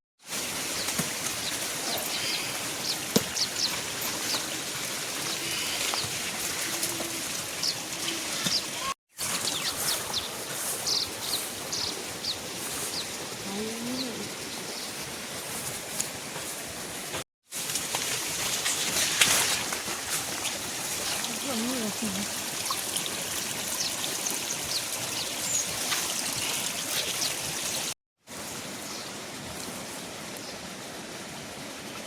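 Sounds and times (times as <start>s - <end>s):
small birds chirping: 0.7s - 15.0s.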